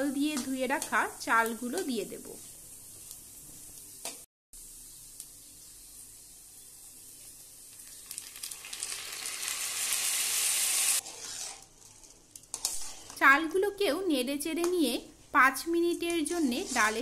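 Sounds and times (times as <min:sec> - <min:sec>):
food sizzling in oil: 0:00.0 - 0:14.9, 0:15.5 - 0:17.0
rice poured into hot oil: 0:04.6 - 0:13.0.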